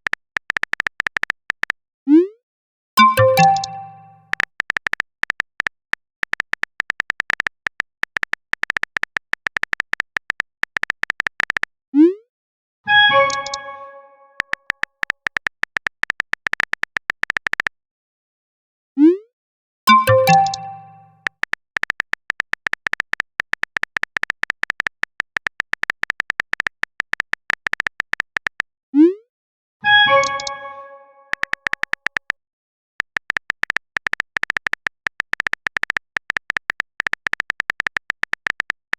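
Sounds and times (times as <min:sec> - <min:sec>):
keyboard typing clicks: 0:00.0 - 0:01.8, 0:03.0 - 0:11.7, 0:13.2 - 0:13.7, 0:14.4 - 0:17.7, 0:19.9 - 0:28.7, 0:30.2 - 0:30.6, 0:31.3 - 0:32.4, 0:33.0 - 0:38.9
notification chime: 0:03.0 - 0:04.3, 0:19.9 - 0:21.2, 0:30.1 - 0:31.4.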